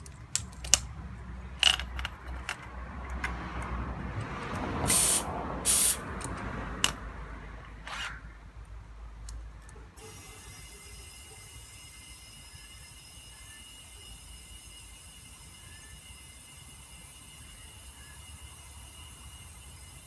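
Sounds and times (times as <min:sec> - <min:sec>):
air hissing: 0:04.8 - 0:06.1
air pump humming: 0:04.9 - 0:06.0.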